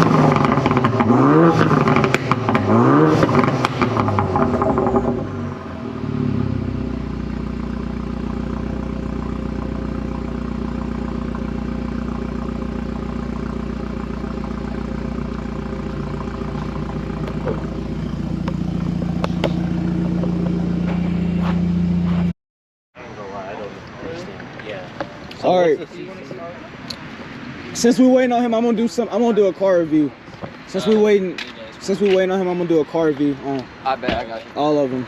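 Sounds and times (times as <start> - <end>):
car engine droning: 0.0 - 22.3.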